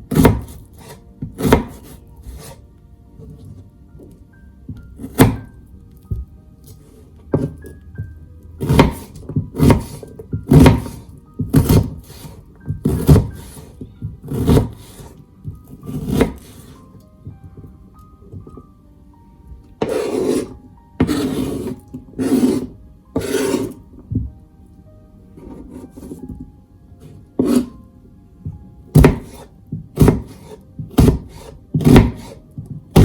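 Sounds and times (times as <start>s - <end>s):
soft background music: 0.0s - 33.0s
knife chopping on wooden board: 0.1s - 2.6s, 5.0s - 5.5s, 6.1s - 7.7s, 8.6s - 16.8s, 19.8s - 24.3s, 27.4s - 27.8s, 28.5s - 33.0s.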